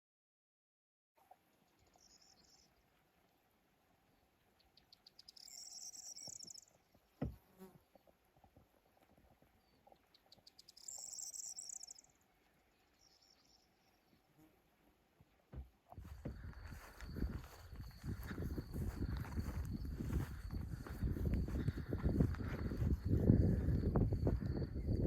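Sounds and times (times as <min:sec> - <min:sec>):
insect ticking and buzzing: 0:05.0 - 0:06.7, 0:10.4 - 0:12.1.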